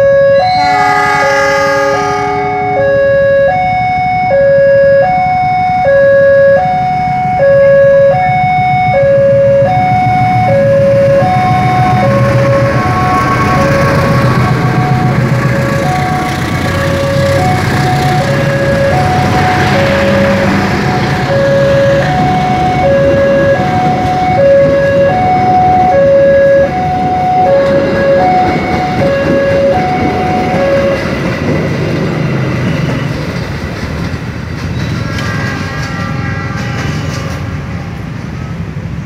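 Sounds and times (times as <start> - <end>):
brief high-pitched tone: 0.0 - 23.8
level crossing warning signal: 0.0 - 31.8
train rumbling past on rails: 0.4 - 4.2, 8.2 - 39.0.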